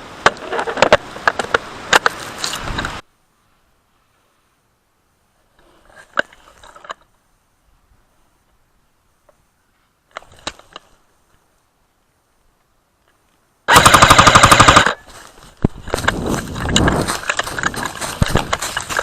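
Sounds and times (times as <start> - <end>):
airsoft gun full-auto burst: 13.7 - 15.0.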